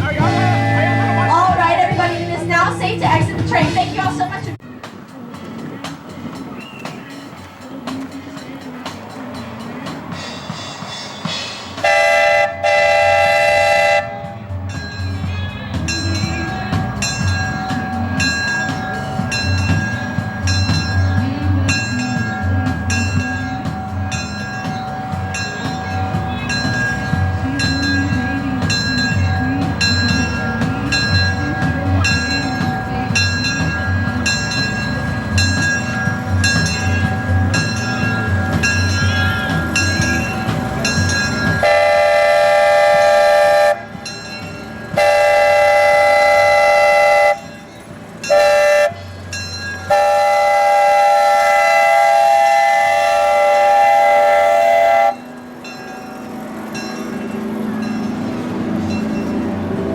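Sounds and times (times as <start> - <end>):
steam locomotive rhythmic beat: 0.0 - 59.9
multi-tone locomotive whistle blasts: 0.2 - 1.6, 11.8 - 14.5, 41.6 - 44.1, 44.9 - 47.6, 48.2 - 49.1, 49.9 - 55.4.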